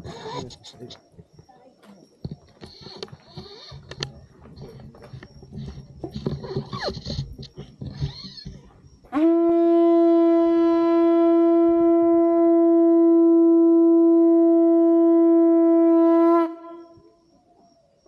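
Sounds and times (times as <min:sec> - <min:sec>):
conch shell trumpet note: 0:09.1 - 0:16.9.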